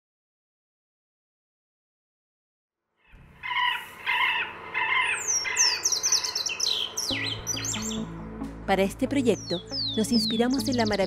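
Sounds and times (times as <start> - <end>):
repeated short bird calls: 3.4 - 8.0
birds chirping and whistling: 3.4 - 8.2, 9.1 - 11.0.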